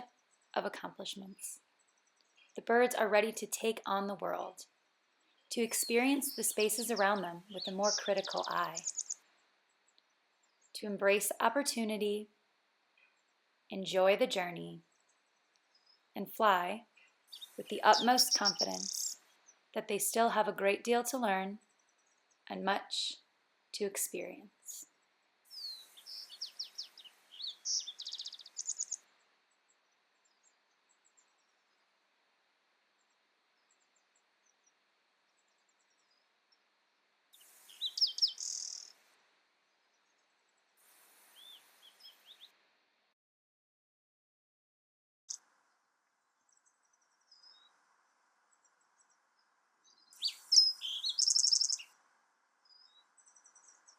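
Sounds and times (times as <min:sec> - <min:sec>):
soft outdoor hiss: 0:00.0 - 0:43.1, 0:45.3 - 0:53.9
distant bird chirps: 0:05.2 - 0:10.8, 0:17.0 - 0:19.7, 0:25.5 - 0:29.0, 0:37.6 - 0:39.0, 0:48.5 - 0:51.9
songbird singing with trill: 0:05.5 - 0:09.2, 0:17.3 - 0:19.2, 0:25.5 - 0:29.0, 0:37.7 - 0:38.9, 0:49.9 - 0:51.9.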